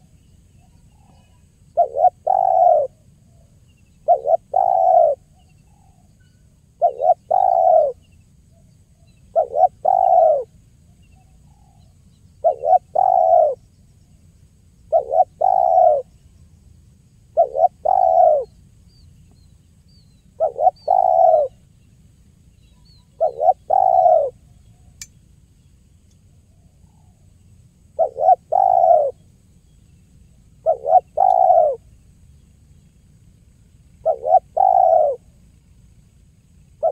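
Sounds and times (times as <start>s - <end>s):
small birds chirping: 0.0s - 36.9s
dove cooing: 0.9s - 6.1s, 6.8s - 8.1s, 9.3s - 10.5s, 11.2s - 13.6s, 14.9s - 16.1s, 17.3s - 18.6s, 20.3s - 21.6s, 23.0s - 24.5s, 27.9s - 29.2s, 30.6s - 31.9s, 33.9s - 35.4s
click: 25.0s - 25.2s, 26.0s - 26.2s.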